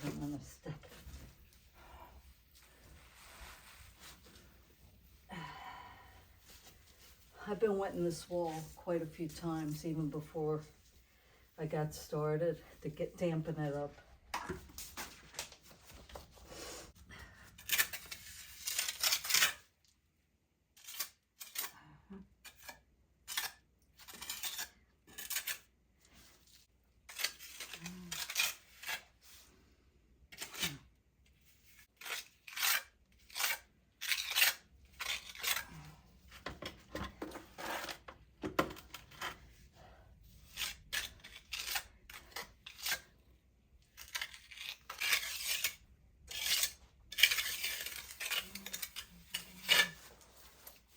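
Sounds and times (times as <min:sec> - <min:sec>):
steel trowel scraping mortar: 0:44.0 - 0:50.8.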